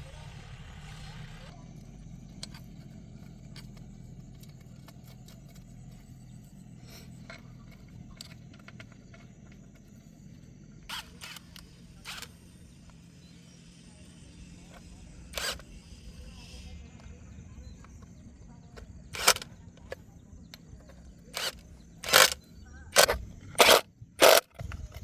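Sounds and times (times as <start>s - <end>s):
steady low hum: 0.0s - 25.0s
clicks and scrapes on metal: 1.8s - 13.0s, 17.8s - 25.0s.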